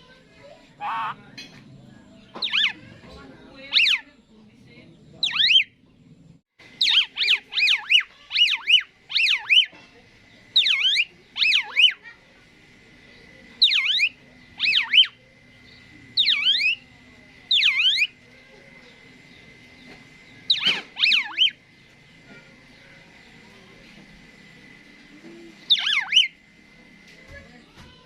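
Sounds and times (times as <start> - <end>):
starling whistled calls: 0.8 - 1.2, 2.3 - 4.1, 5.2 - 5.8, 6.6 - 12.2, 13.0 - 23.5, 25.6 - 26.5.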